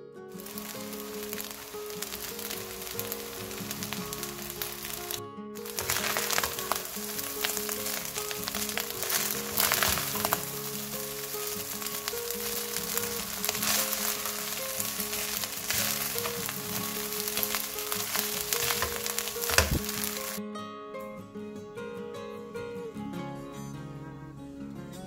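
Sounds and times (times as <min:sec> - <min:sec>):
background music: 0:00.0 - 0:25.0
rice sizzling in a wok: 0:00.3 - 0:20.4
spatula scraping a wok: 0:00.4 - 0:20.4.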